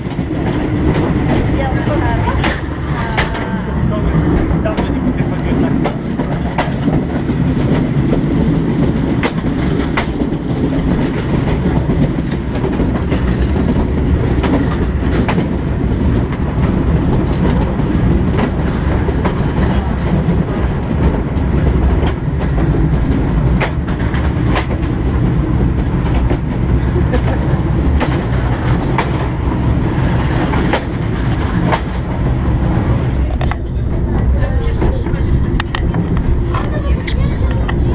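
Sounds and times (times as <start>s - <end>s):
train rumbling: 0.0s - 37.9s
wheels clicking over rail joints: 5.6s - 34.0s.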